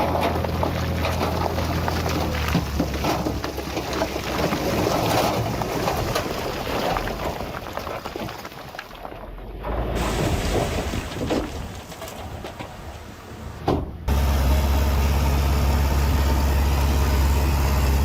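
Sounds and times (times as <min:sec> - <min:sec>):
heavy diesel machinery running: 0:12.6 - 0:18.0.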